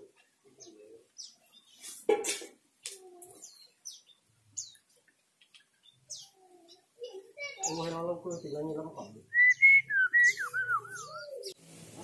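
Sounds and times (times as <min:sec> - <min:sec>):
bird chirping: 0:00.0 - 0:02.0, 0:03.2 - 0:11.6
soft low bird calls: 0:03.0 - 0:11.6.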